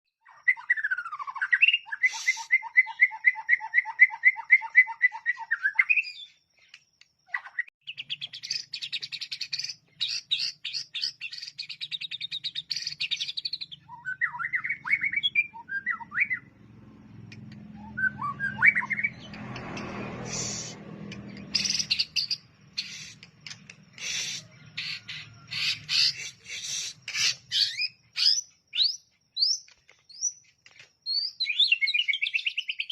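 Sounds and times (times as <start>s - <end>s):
bird singing: 0.2s - 32.9s
brief noisy rush: 19.7s - 21.3s.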